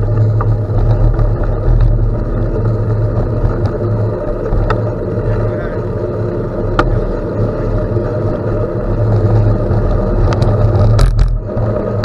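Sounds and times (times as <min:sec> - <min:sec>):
bike clicks and rattles: 0:00.0 - 0:12.0
gravel crunching under bike tyres: 0:00.0 - 0:12.0.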